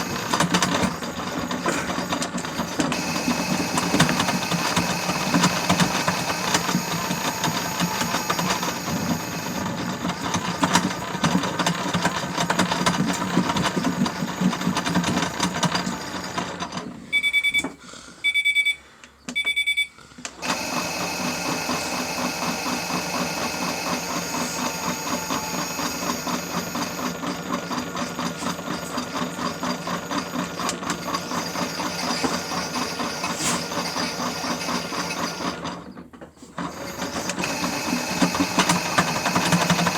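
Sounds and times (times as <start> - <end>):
toy washing machine motor: 0.0 - 17.2, 20.3 - 39.9
short electronic beeps: 17.1 - 20.0.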